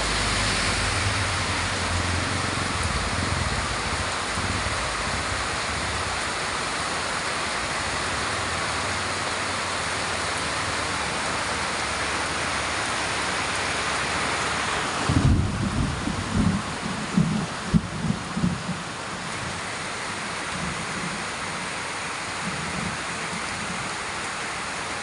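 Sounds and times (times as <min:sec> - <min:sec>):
low rumbling: 0:00.0 - 0:06.7
heavy rain pouring: 0:00.0 - 0:25.0.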